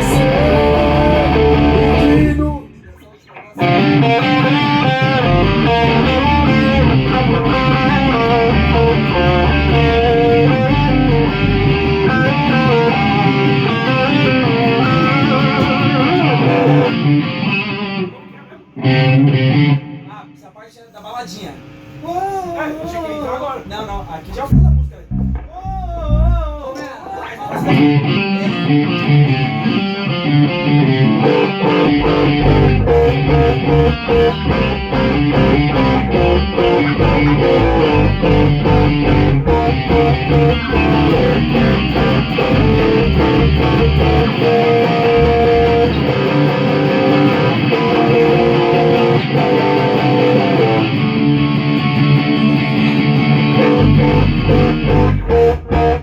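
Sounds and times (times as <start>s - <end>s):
band playing electric guitars: 0.0s - 20.0s, 27.5s - 56.0s.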